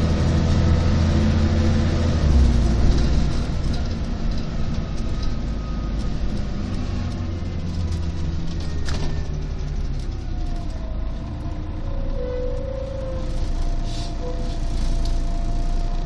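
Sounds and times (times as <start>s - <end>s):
bus engine low rumble: 0.0s - 16.0s.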